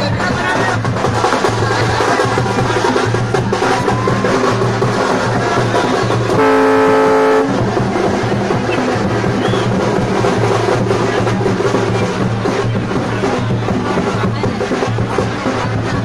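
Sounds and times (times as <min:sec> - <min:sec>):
festival music with drums: 0:00.0 - 0:16.0
loud horn blowing: 0:06.3 - 0:07.7.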